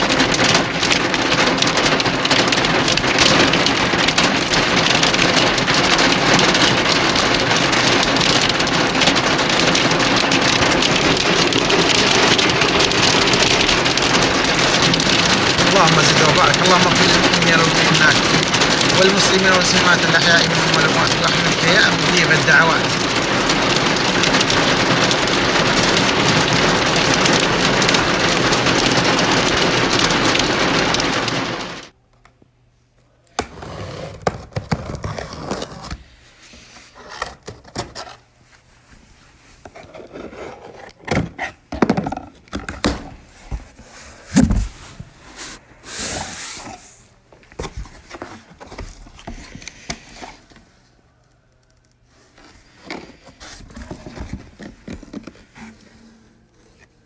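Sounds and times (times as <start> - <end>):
rustling handling noises: 0.0 - 29.5, 34.6 - 51.0, 51.8 - 57.0
heavy rain hissing: 0.0 - 31.9
knocks and thuds: 41.2 - 45.6.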